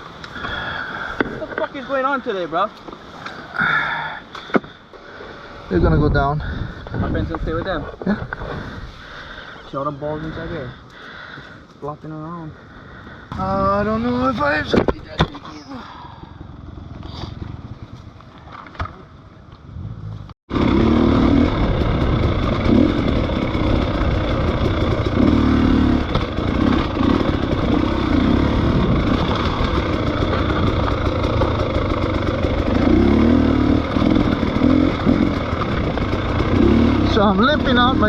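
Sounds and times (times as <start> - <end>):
motorcycle engine: 20.5 - 38.0.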